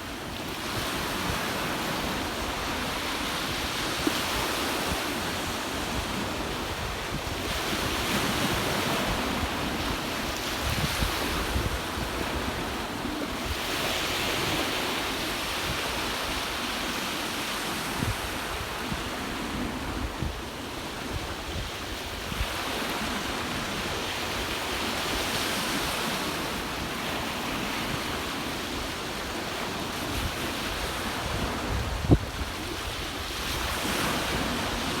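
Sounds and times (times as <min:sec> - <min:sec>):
ocean waves washing ashore: 0:00.0 - 0:35.0
wind buffeting microphone: 0:00.4 - 0:16.7, 0:30.0 - 0:35.0.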